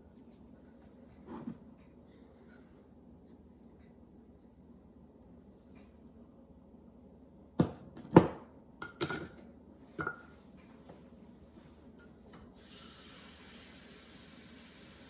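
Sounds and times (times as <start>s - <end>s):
kitchenware clattering: 8.2s - 9.4s, 10.0s - 10.4s
steady hiss: 12.6s - 15.0s.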